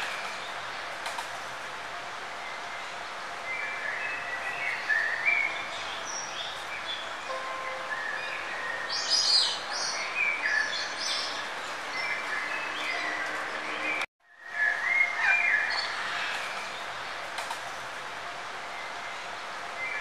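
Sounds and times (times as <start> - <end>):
birds chirping: 2.4 - 14.1.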